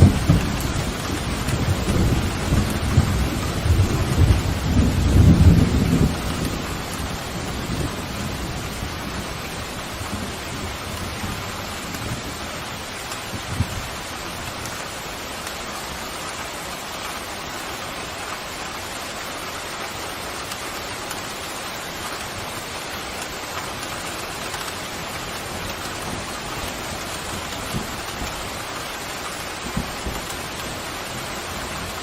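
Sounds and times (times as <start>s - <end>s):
heavy rain: 0.0s - 32.0s.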